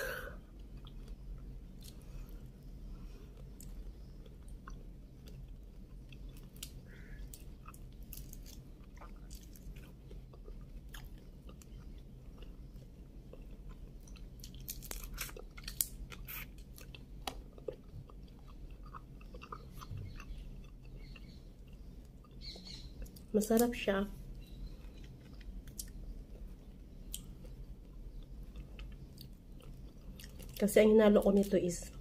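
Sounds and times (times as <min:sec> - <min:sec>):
chewing and crunching shrimp: 0:00.0 - 0:32.0
shrimp shells peeled crackling: 0:06.2 - 0:10.0, 0:13.5 - 0:23.8.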